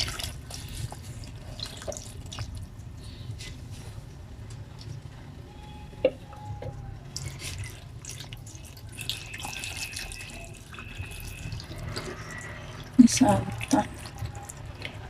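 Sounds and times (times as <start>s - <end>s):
curry simmering in a pot: 7.2s - 15.0s.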